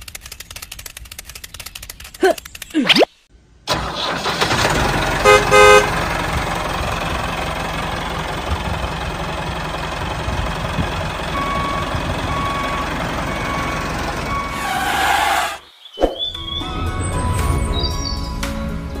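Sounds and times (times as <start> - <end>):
tractor engine running: 0.0 - 2.8, 3.6 - 15.3
reversing alarm beeping: 11.3 - 15.5.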